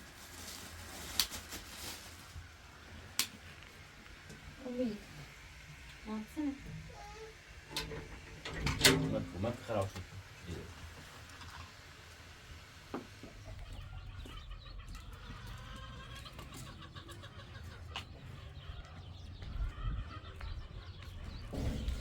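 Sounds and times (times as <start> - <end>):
birds chirping: 4.6 - 11.2, 11.8 - 22.0.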